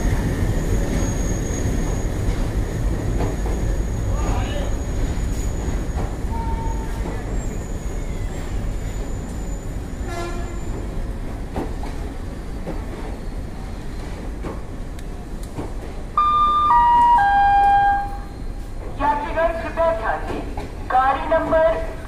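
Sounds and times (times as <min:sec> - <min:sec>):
train coaches rumbling: 0:00.0 - 0:22.0
three-tone announcement chime: 0:16.2 - 0:18.3.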